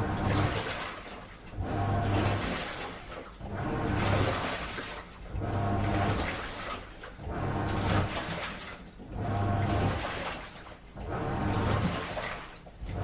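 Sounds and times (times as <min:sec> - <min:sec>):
low motor hum: 0:00.0 - 0:00.7, 0:01.5 - 0:02.5, 0:05.3 - 0:06.4, 0:07.2 - 0:08.3, 0:09.0 - 0:10.2, 0:11.0 - 0:12.0, 0:12.8 - 0:13.0
washing machine drum sloshing: 0:00.0 - 0:13.0.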